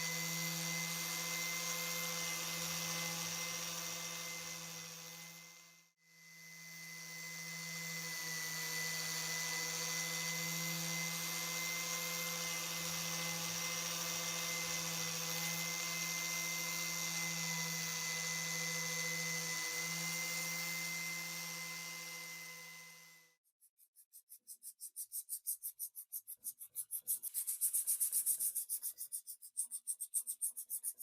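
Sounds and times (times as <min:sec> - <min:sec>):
electric power tool humming: 0:00.0 - 0:23.4.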